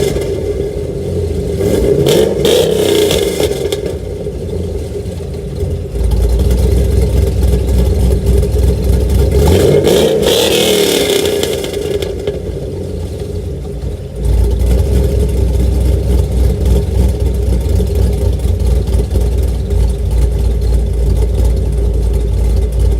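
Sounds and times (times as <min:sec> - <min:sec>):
car engine idling with low rumble: 0:00.0 - 0:22.9
car engine revving: 0:00.0 - 0:22.9.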